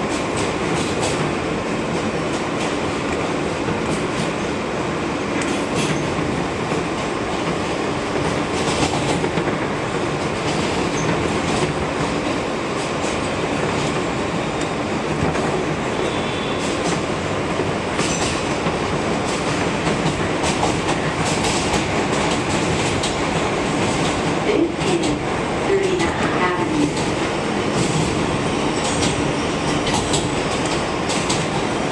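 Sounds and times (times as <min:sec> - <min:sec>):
subway wheels rumbling on rail: 0:00.0 - 0:31.9
wheels clacking over rail joints: 0:16.2 - 0:25.2.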